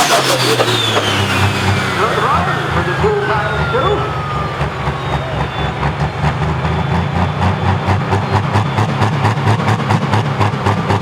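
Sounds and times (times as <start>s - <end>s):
high whine: 0.0s - 6.8s
diesel tractor engine pulsing: 0.0s - 11.0s.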